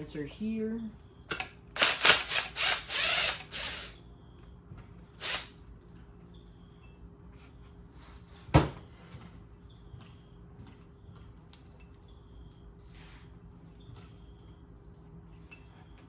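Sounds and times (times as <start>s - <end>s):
ratchet turning: 1.8s - 4.0s, 5.2s - 5.5s.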